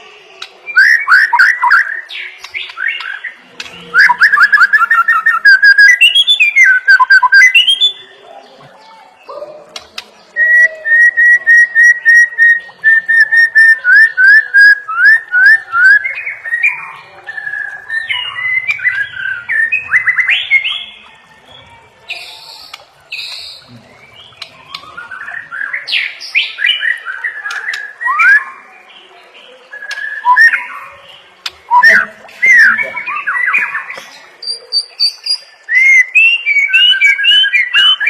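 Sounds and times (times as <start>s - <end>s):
bird singing whistled notes: 0.7s - 8.2s, 22.1s - 28.7s, 29.7s - 31.0s, 31.7s - 38.0s.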